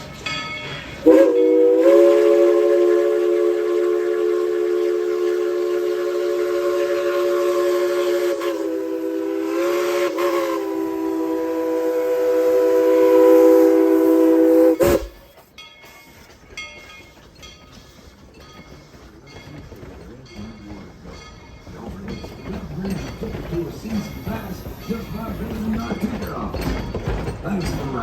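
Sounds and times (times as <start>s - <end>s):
chime steam whistle: 1.0s - 16.9s.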